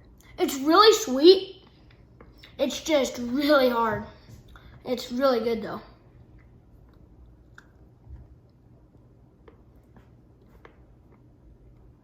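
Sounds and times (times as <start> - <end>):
faint chewing: 6.2 - 12.0.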